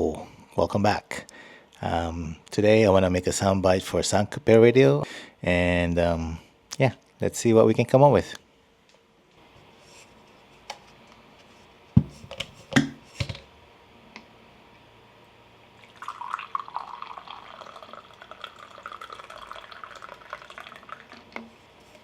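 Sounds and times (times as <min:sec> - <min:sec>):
water pouring into container: 0:15.8 - 0:21.4.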